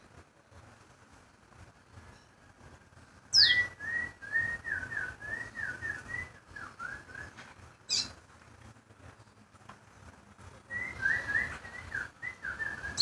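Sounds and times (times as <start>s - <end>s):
songbird whistling: 3.3s - 8.1s, 10.7s - 13.0s.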